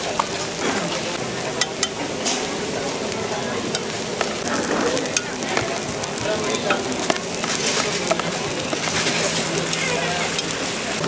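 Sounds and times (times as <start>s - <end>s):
food sizzling in a pan: 0.0s - 11.0s
metal utensil clicking in pan: 1.6s - 2.5s.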